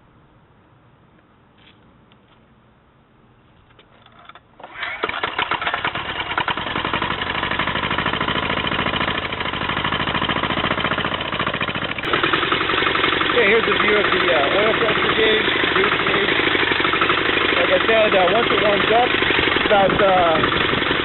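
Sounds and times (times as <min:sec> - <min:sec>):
diesel engine clattering: 0:04.6 - 0:21.0.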